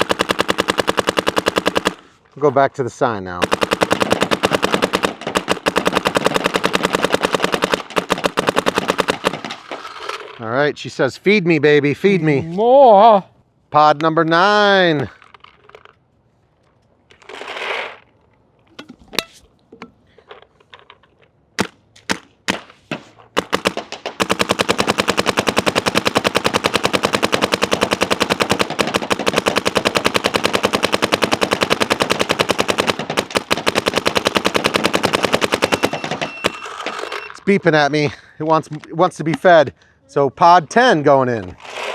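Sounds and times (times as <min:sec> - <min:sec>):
paintball marker firing: 0:03.4 - 0:09.8, 0:21.6 - 0:37.0.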